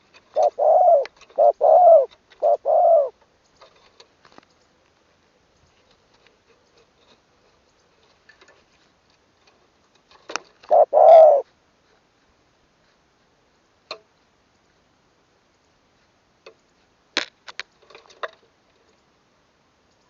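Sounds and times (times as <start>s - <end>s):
dove cooing: 0.0s - 3.2s, 10.6s - 11.5s.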